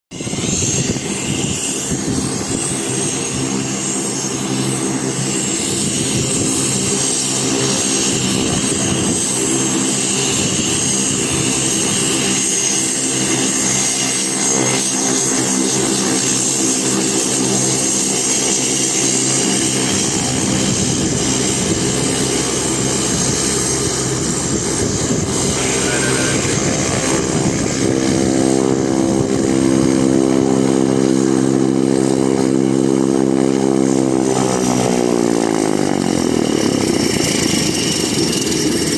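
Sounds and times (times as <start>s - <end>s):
high turbine whine: 0.1s - 38.9s
propeller drone: 0.1s - 38.9s.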